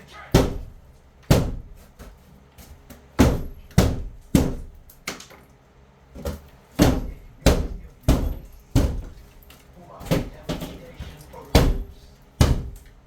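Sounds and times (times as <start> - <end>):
heavy blows on a wall: 0.3 - 2.1, 3.1 - 4.9, 6.7 - 9.4, 10.0 - 12.8.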